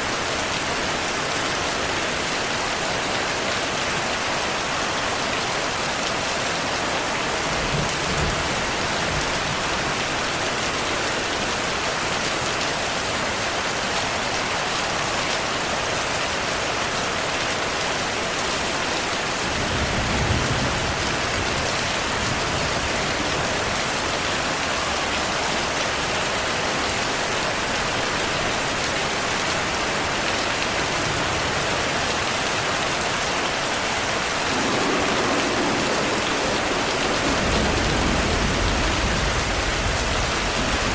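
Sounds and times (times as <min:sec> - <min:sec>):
heavy rainfall: 0:00.0 - 0:40.9
thunder rumble: 0:34.3 - 0:40.9.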